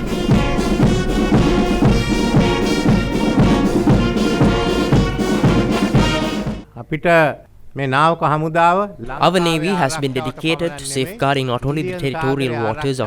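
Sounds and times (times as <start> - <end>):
brass band music: 0.0 - 6.7
steady drum beat: 0.0 - 6.7.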